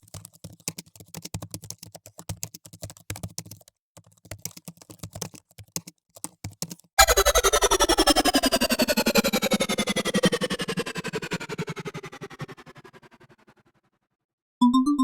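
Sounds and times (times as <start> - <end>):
loud music: 7.0 - 11.6
falling sweep: 7.0 - 13.1.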